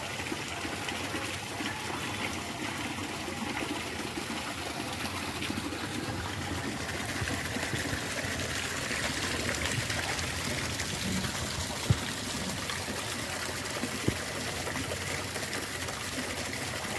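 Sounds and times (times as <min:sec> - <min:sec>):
water trickling in a drain: 0:00.0 - 0:16.9.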